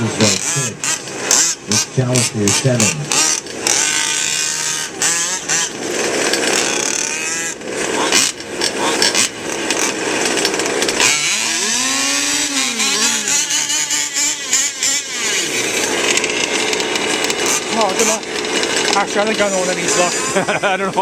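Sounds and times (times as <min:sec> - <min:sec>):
small two-stroke engines revving: 0:00.0 - 0:21.0.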